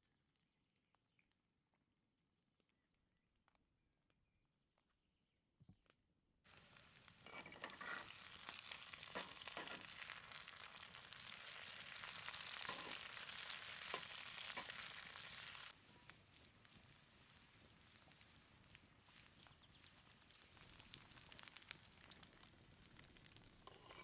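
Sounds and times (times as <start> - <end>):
meat sizzling in a hot pan: 6.5 - 24.0.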